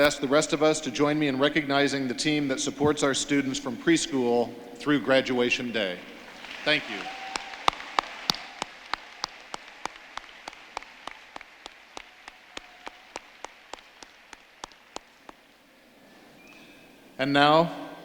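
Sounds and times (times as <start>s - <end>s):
audience applause: 6.0s - 15.5s
single person clapping: 6.4s - 15.4s.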